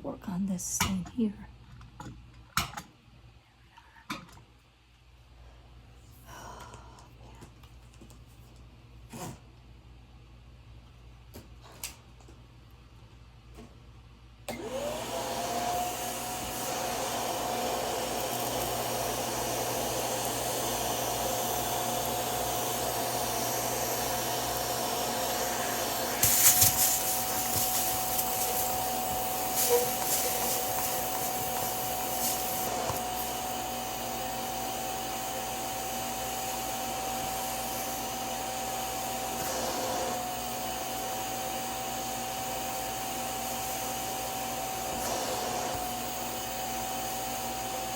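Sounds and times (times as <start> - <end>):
spot cleaner suction motor whine: 14.5 - 47.9.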